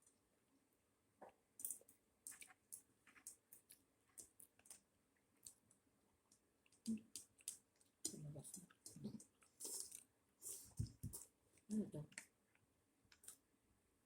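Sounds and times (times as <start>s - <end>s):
mouth and chewing clicks: 1.6s - 4.8s, 5.4s - 5.7s, 6.3s - 11.3s, 13.1s - 13.4s.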